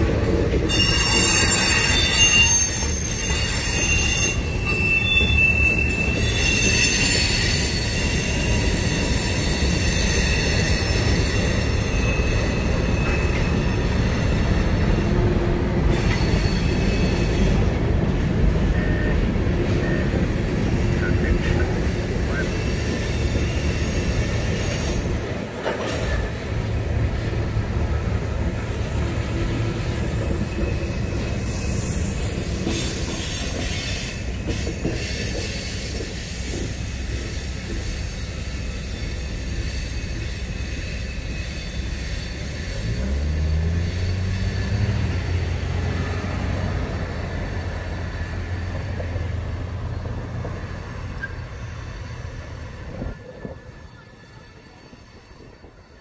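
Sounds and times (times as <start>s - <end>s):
train wheels clattering and squealing: 0.0s - 56.0s
crossing bell ringing: 0.6s - 17.6s.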